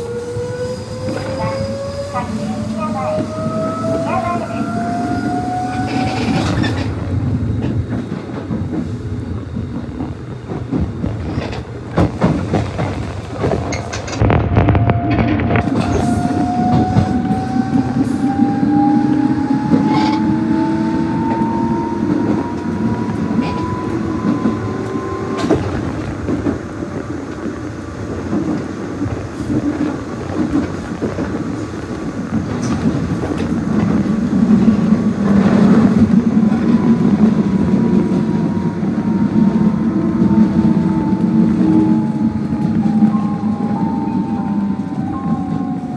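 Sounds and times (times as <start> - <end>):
electric train motor whine: 0.0 - 10.4, 14.2 - 28.2
low train rumble: 0.0 - 45.9.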